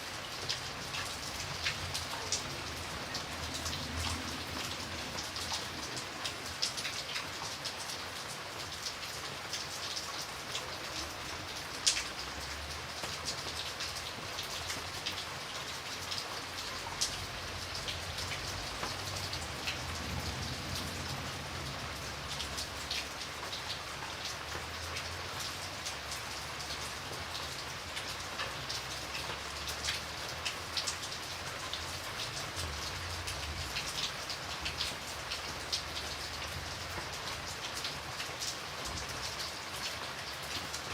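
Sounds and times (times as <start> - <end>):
rain drops ticking on hard surface: 0.0 - 40.9.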